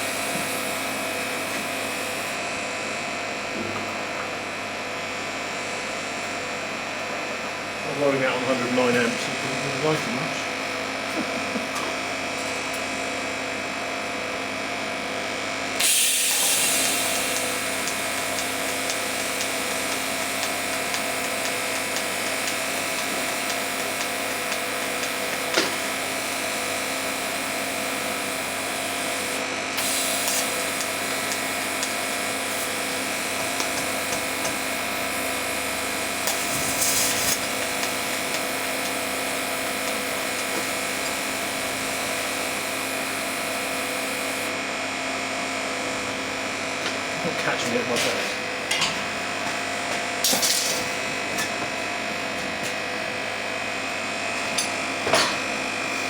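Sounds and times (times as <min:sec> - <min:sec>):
metalworking tool running: 0:00.0 - 0:56.0.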